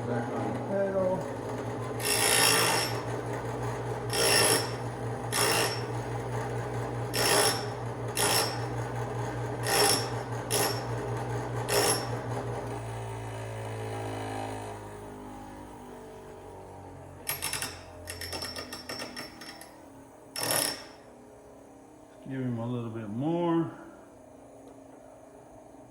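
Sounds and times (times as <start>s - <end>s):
bench grinder motor hum: 0.0s - 19.8s, 20.4s - 21.1s
drill bit grinding against wheel: 2.0s - 3.3s, 4.1s - 6.3s, 7.1s - 11.0s, 11.6s - 12.2s, 17.3s - 19.7s, 20.4s - 21.1s.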